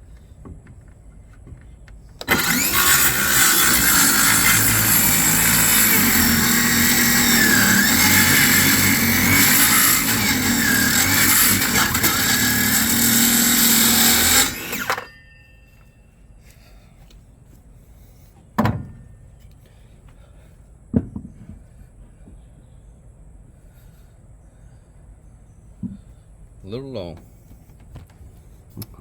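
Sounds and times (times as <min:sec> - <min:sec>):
power saw cutting wood: 0:02.2 - 0:15.2.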